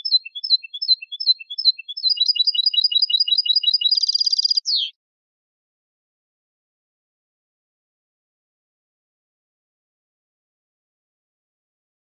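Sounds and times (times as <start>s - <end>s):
songbird singing: 0.0s - 5.0s.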